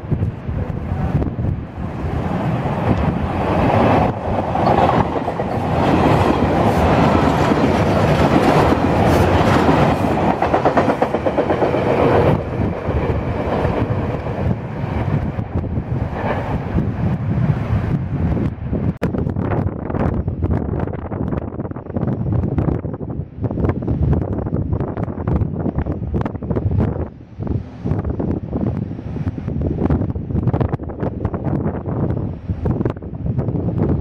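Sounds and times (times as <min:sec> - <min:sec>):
electric train passing: 0:00.0 - 0:22.9
wheels clacking over rail joints: 0:02.3 - 0:15.1.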